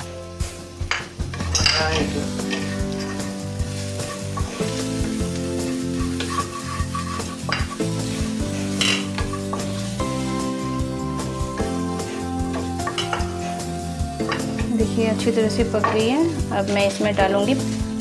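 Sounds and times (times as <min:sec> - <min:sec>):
background music: 0:00.0 - 0:18.0
vegetables sizzling in oil: 0:00.0 - 0:18.0
wooden spatula scraping pan: 0:01.3 - 0:09.9.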